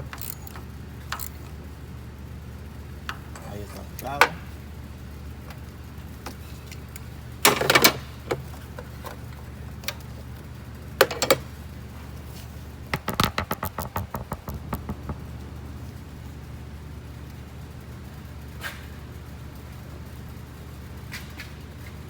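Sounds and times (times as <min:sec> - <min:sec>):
hand tools clinking on metal: 0:00.0 - 0:01.5
steady low hum: 0:00.0 - 0:22.0.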